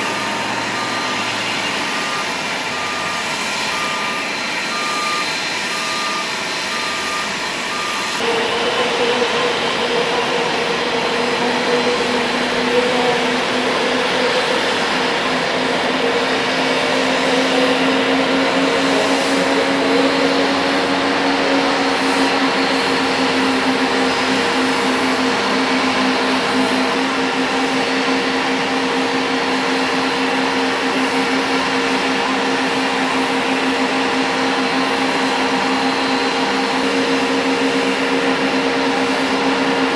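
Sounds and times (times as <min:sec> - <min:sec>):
electronic reversing beeper: 0:00.0 - 0:08.3
jet engines running: 0:00.0 - 0:39.9.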